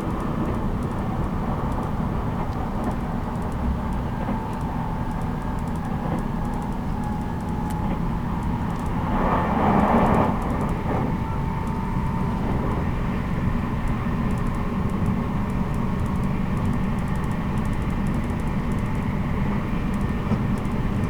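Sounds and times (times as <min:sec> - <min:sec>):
train rushing swell: 0:09.0 - 0:13.2.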